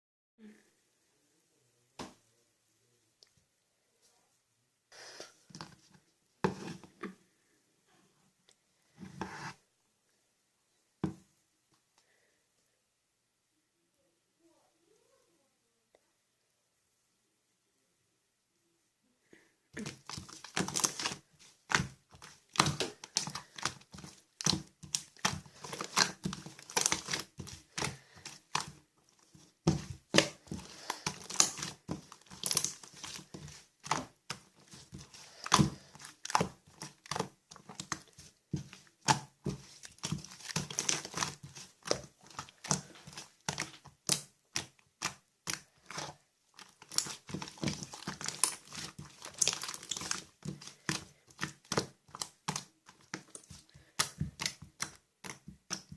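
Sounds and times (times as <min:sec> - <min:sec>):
slime crackling and popping: 0:19.8 - 0:55.9.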